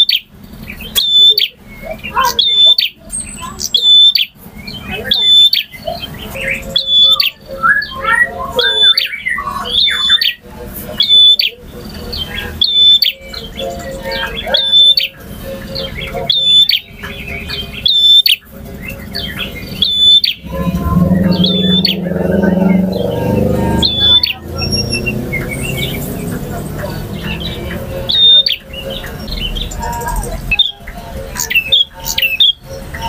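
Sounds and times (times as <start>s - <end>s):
bird singing sharp notes: 11.0s - 33.0s
low drone: 19.7s - 29.7s.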